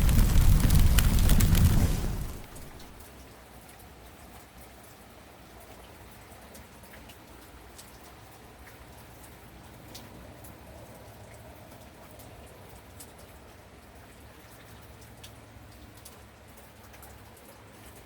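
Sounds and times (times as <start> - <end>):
sharp drips and clicks: 0.0 - 3.0
steady rain falling: 0.0 - 3.1.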